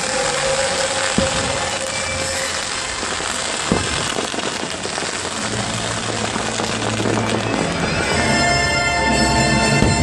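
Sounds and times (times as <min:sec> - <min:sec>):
fireworks crackling and popping: 0:00.0 - 0:10.0
sharp firework bang: 0:01.1 - 0:02.4, 0:03.6 - 0:04.9
show music: 0:05.6 - 0:10.0.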